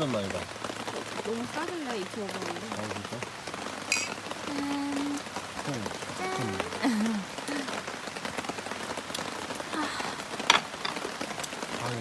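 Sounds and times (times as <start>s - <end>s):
heavy rain falling: 0.0s - 12.0s
murmur of a voice: 1.2s - 7.9s.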